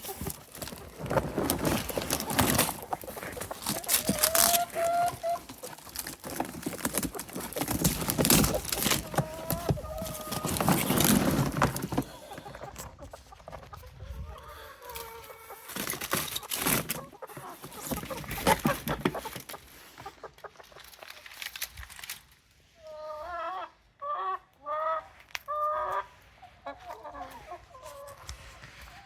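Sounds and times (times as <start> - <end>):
rustling: 0.0 - 13.1, 15.5 - 22.4
chickens clucking: 0.0 - 21.5, 22.8 - 29.0.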